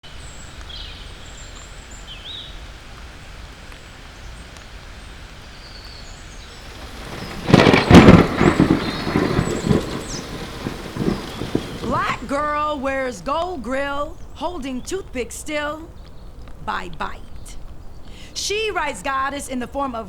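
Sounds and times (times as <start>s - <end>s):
rain hiss: 0.0s - 15.9s, 16.5s - 20.0s
thunderclap rumbling: 6.5s - 13.8s.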